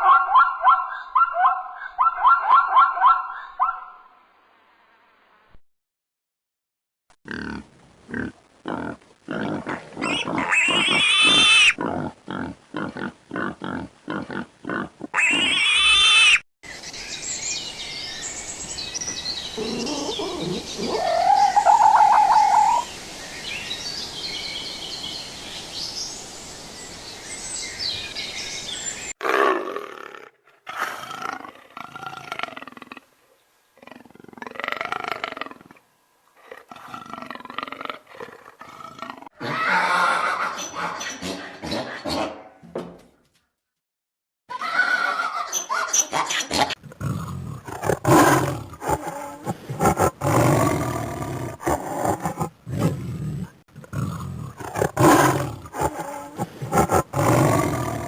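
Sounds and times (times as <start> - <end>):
loud high animal calls: 10.0 - 11.8, 15.2 - 16.4, 19.6 - 22.9, 39.4 - 42.0
rising animal call: 19.6 - 22.9, 39.4 - 42.0
outdoor hiss: 20.6 - 29.1
animal pulsing grunts: 46.6 - 50.8, 51.6 - 58.0.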